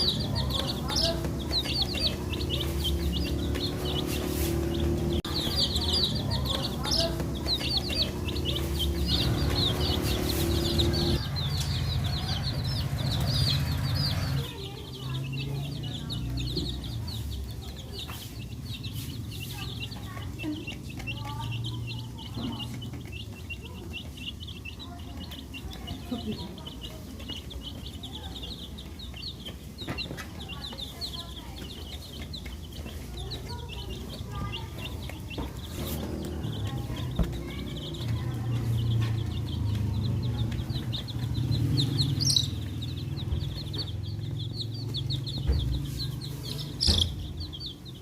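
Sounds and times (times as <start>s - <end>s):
baby chicks peeping: 0.0s - 48.0s.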